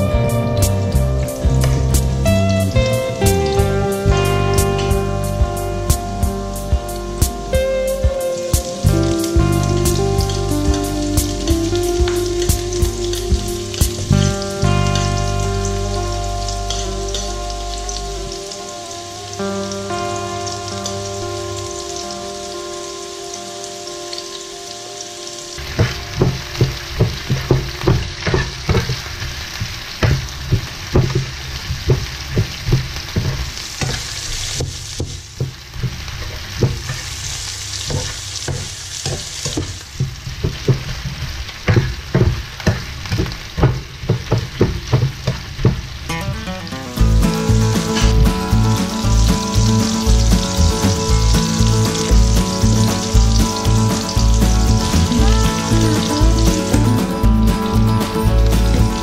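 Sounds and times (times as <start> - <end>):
held musical notes: 0.0 - 34.0, 45.9 - 59.0
ginger and garlic sizzling in oil: 0.0 - 59.0
spatula scraping and clacking pan: 25.6 - 37.1, 37.8 - 46.4.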